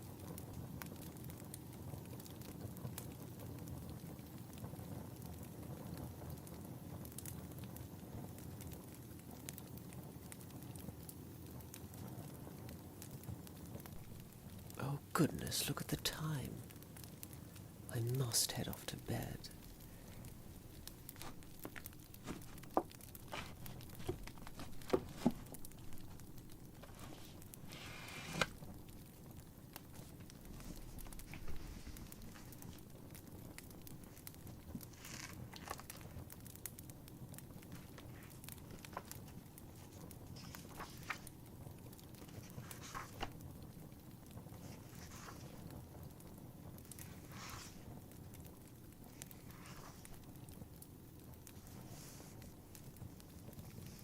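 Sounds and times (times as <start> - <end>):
wood fire crackling: 0.0 - 54.0
sharp pops: 18.6 - 28.8.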